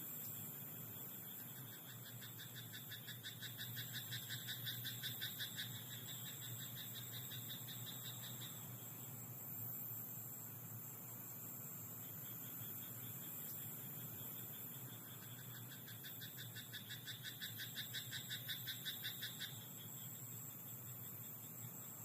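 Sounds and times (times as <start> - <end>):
frog croaking rapidly: 15.6 - 19.6.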